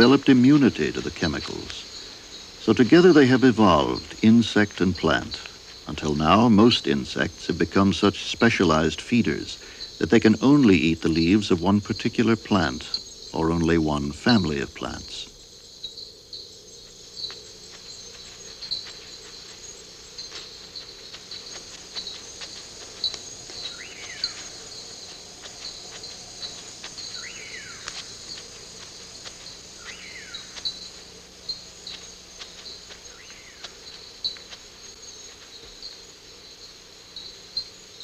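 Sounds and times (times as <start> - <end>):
high insect trill: 0.0 - 38.0
insects chirping: 0.0 - 38.0.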